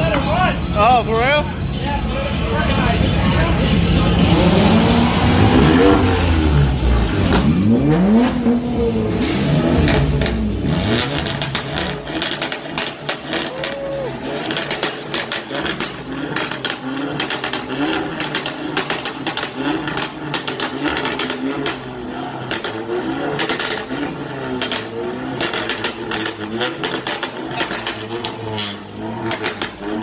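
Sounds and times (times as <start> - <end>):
voices: 0.0 - 5.5
car engine idling: 0.0 - 30.0.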